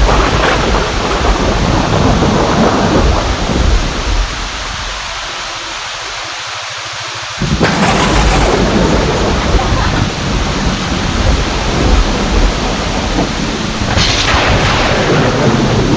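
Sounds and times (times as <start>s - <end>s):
low thunder rumble: 0.0s - 5.0s, 7.4s - 15.9s
heavy rain pouring: 0.0s - 15.9s.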